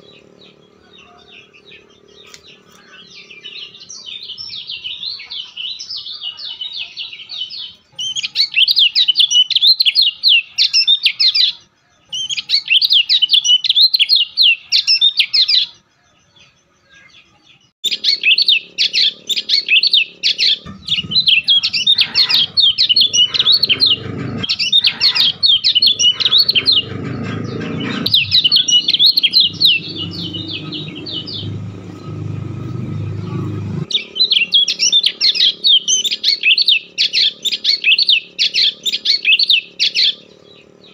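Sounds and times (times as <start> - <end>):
songbird warbling: 17.8 - 40.9
low hum: 17.9 - 37.0.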